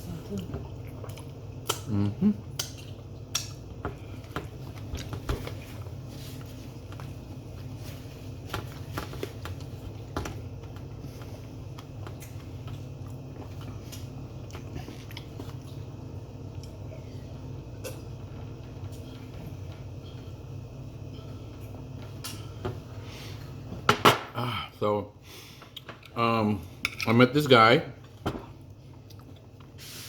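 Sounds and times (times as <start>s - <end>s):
steady low hum: 0.0s - 30.0s
person chewing: 0.7s - 5.2s, 13.0s - 15.8s.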